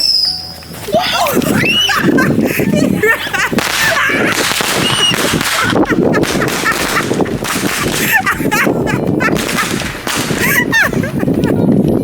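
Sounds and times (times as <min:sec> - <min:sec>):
fireworks popping and crackling: 0:00.0 - 0:12.0
children shrieking and yelling: 0:00.9 - 0:05.8.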